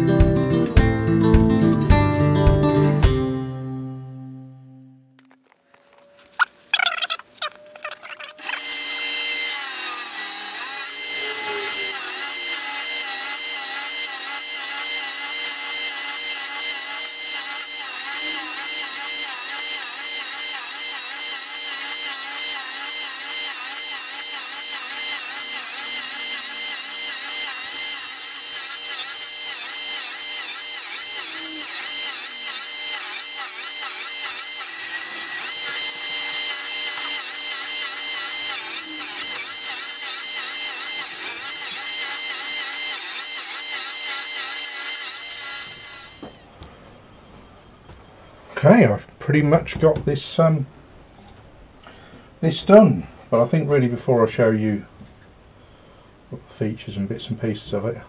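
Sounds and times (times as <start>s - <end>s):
power tool cutting wood: 5.2s - 46.6s.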